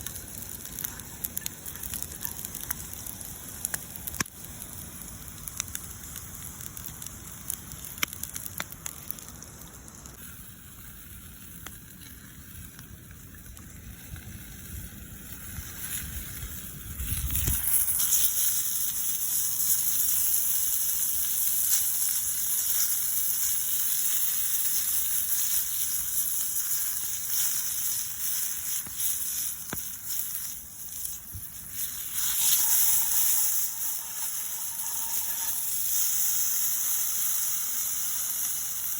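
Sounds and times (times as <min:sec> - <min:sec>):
campfire crackling and popping: 0:00.0 - 0:38.9
loud high hissing: 0:24.3 - 0:38.9.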